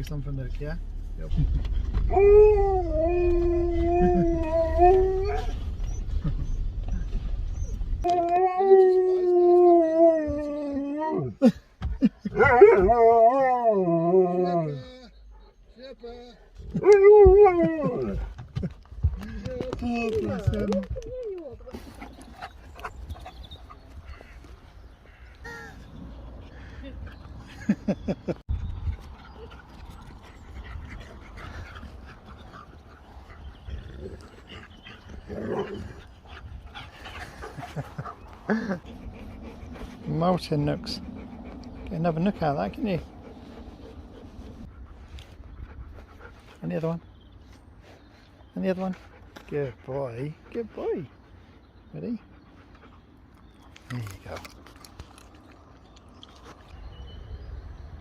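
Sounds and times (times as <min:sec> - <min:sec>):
low steady rumble: 0:00.0 - 0:08.1
dog whining: 0:02.0 - 0:11.4
husky howling: 0:02.0 - 0:11.4, 0:12.3 - 0:15.2, 0:16.7 - 0:18.4.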